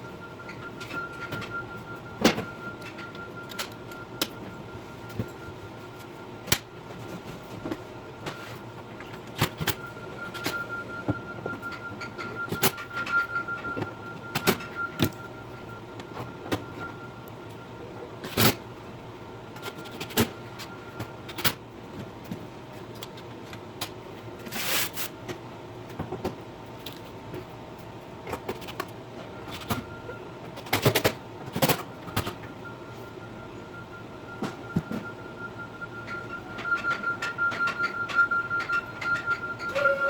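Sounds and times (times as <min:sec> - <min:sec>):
faint high tone: 0:39.6 - 0:40.0.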